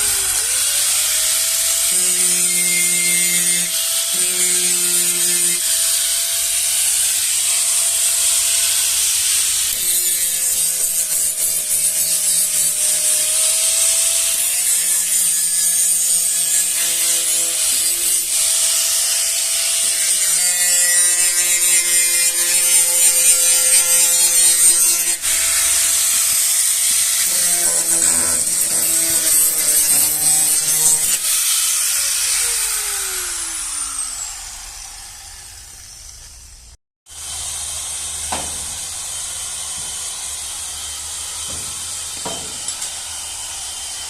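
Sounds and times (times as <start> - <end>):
rasping rubbing sound: 0.0 - 34.2
small electric tool motor buzzing: 0.0 - 44.0.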